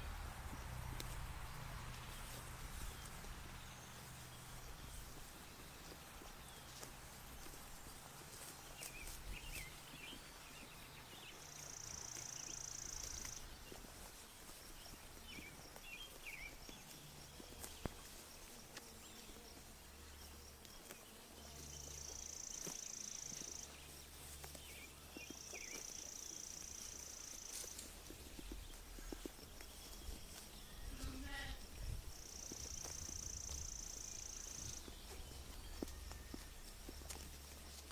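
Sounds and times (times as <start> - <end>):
sheep chewing grass: 0.0 - 37.9
bird chirps: 14.8 - 17.9, 21.6 - 31.2.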